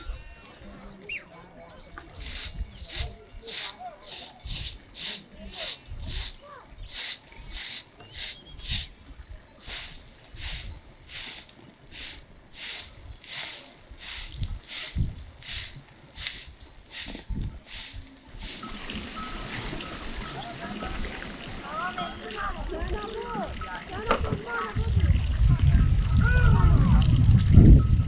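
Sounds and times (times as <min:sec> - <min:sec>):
rhythmic swishing strokes: 0:02.2 - 0:08.9, 0:09.6 - 0:19.8.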